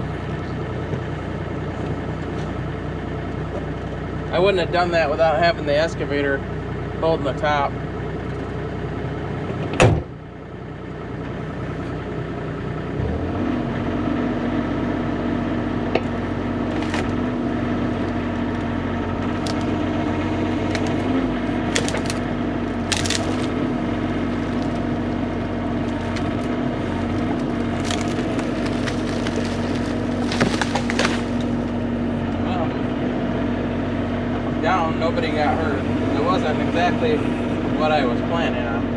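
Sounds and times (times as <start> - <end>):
excavator diesel engine running: 0.0 - 38.9
wood snapping and cracking: 16.0 - 19.8, 20.5 - 31.8.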